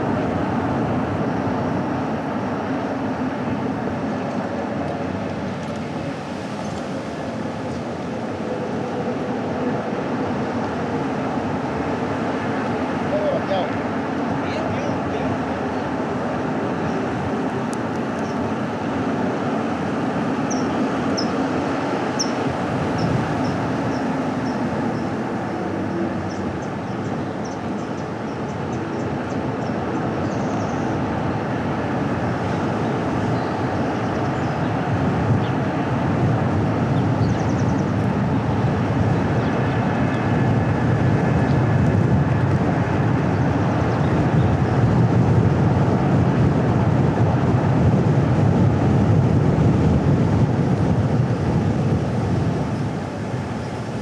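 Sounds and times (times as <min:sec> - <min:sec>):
car tyre and road rumble: 0:00.0 - 0:54.0.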